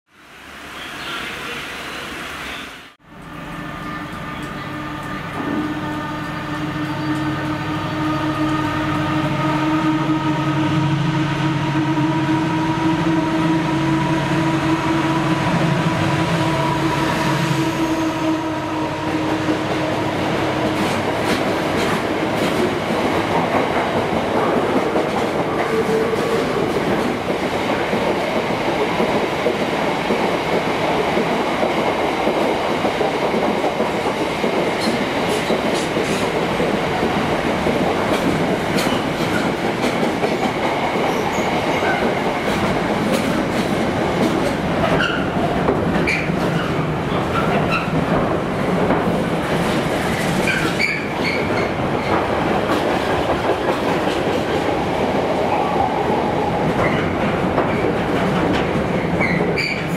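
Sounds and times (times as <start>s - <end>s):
train wagons rumbling: 18.2s - 59.9s
wheels clickety-clack: 20.8s - 54.8s, 56.7s - 59.9s.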